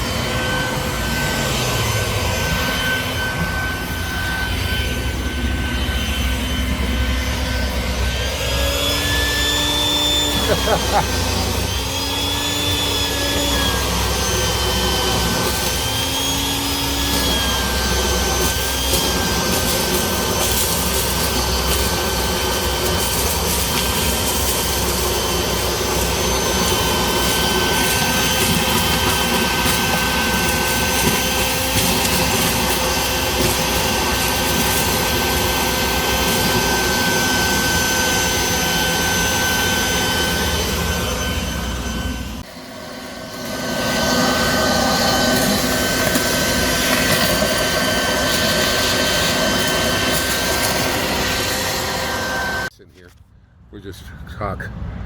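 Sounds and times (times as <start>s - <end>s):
vacuum cleaner running: 0.0s - 52.7s.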